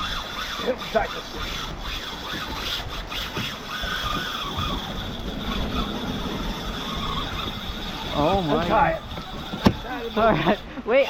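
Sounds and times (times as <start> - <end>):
fishing reel drag screaming: 0.0 - 11.0.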